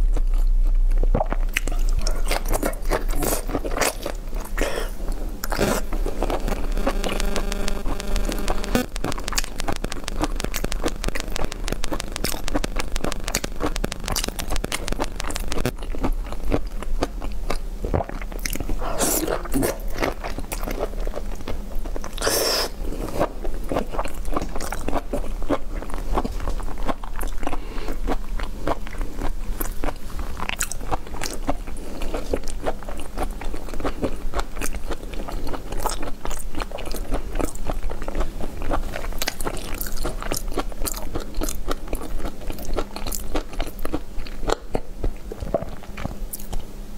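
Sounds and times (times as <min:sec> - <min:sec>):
person chewing shellfish: 0:00.0 - 0:46.7
mouth clicks: 0:01.2 - 0:15.9.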